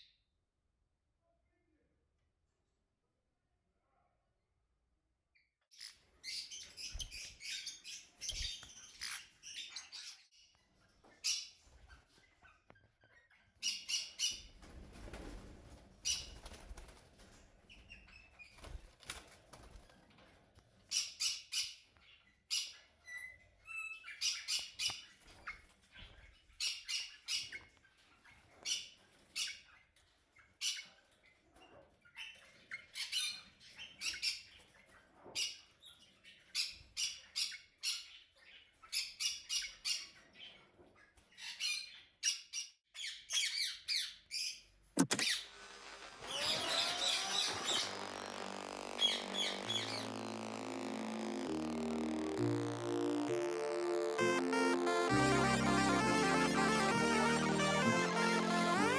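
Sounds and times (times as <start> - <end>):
small birds chirping and chattering: 5.4 - 20.2, 45.9 - 53.2.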